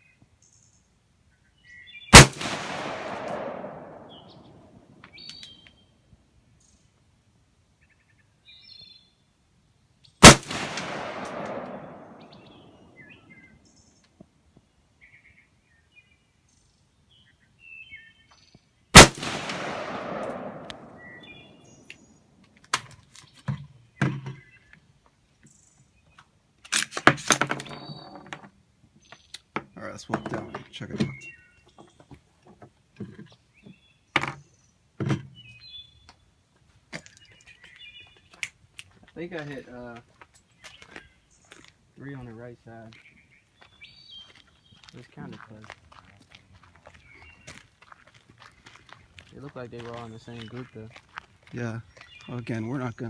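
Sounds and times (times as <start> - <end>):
birds chirping: 0.0 - 7.0, 7.7 - 26.4, 27.6 - 53.0
rifle shots with echo: 2.1 - 5.0, 10.2 - 13.1, 19.0 - 21.8.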